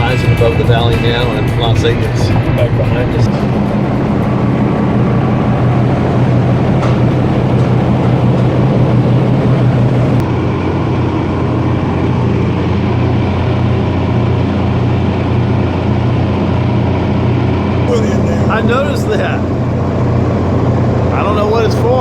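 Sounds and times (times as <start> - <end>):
car engine hum and road noise: 2.6 - 10.3.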